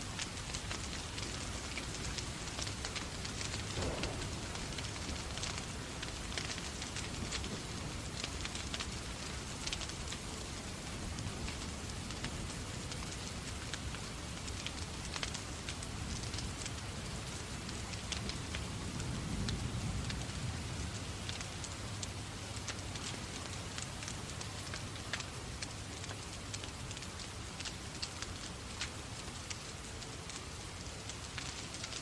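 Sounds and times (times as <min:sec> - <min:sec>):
steady rain: 0:00.0 - 0:32.0
wood fire crackling: 0:00.0 - 0:32.0
low rumble: 0:03.7 - 0:06.8.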